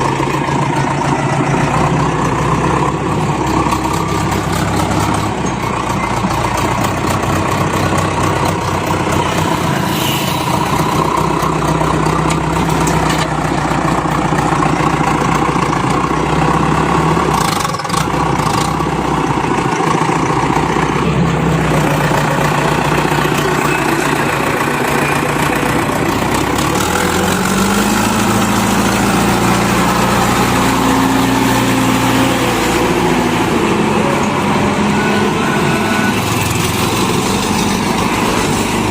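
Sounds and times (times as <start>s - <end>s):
diesel engines revving: 0.0s - 38.9s
higher engine note: 20.4s - 38.9s.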